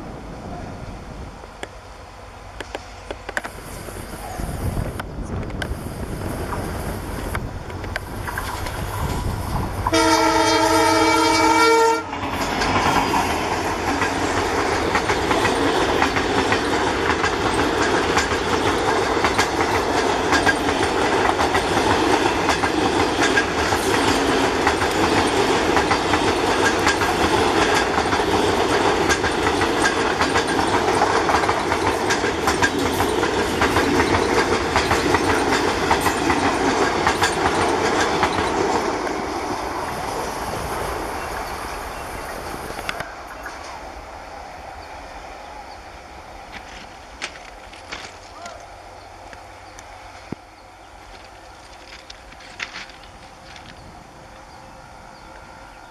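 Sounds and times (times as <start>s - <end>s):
locomotive horn chord: 9.9s - 12.2s
train wheels clattering over joints: 12.1s - 40.2s, 46.5s - 48.6s, 51.0s - 54.6s.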